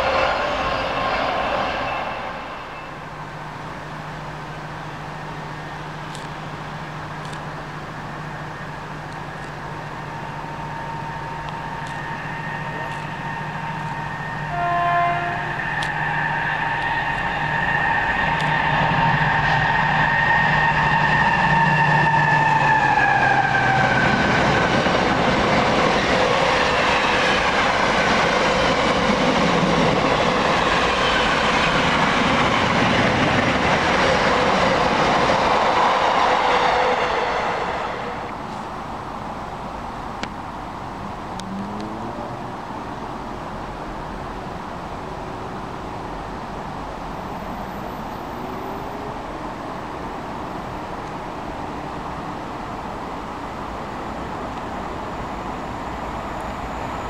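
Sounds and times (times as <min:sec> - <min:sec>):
freight train passing: 0:00.0 - 0:57.0
locomotive whine: 0:00.0 - 0:57.0
train horn blast: 0:12.2 - 0:15.9.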